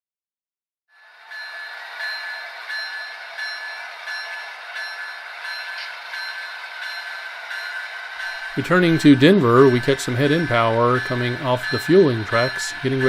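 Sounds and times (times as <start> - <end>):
ringing tone: 0.9 - 13.0.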